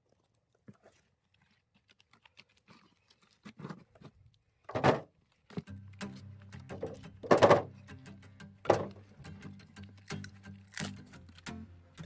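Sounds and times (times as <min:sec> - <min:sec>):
firewood pieces knocking together: 0:06.7 - 0:07.7, 0:08.7 - 0:09.0.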